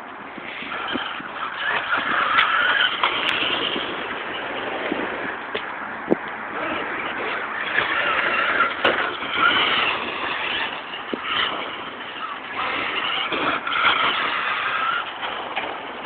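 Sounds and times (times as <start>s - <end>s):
electric motor whining: 6.5s - 16.0s.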